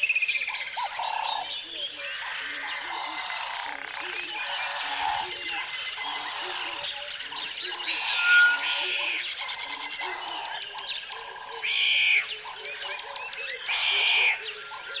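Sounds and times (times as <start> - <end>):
birds chirping: 0.0 - 15.0
frogs croaking: 0.0 - 15.0
louder higher calls: 7.8 - 9.4.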